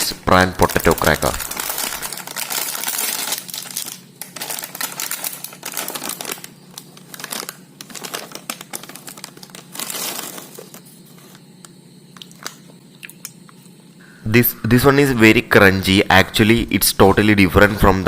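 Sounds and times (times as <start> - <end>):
plastic snack packet crackling: 0.6 - 11.4.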